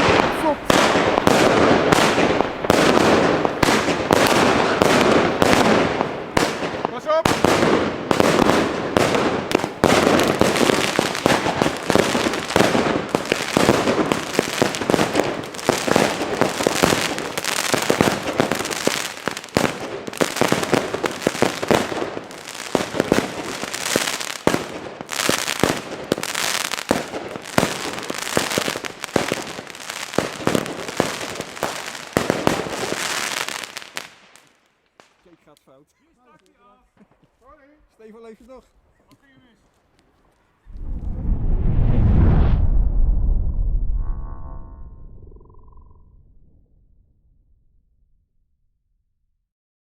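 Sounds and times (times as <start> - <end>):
fireworks barrage bangs and crackle: 0.0 - 35.4.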